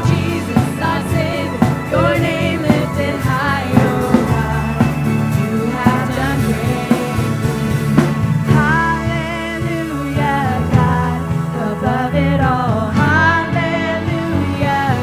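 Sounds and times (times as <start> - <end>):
band playing worship music: 0.0 - 15.0
person singing: 0.0 - 15.0.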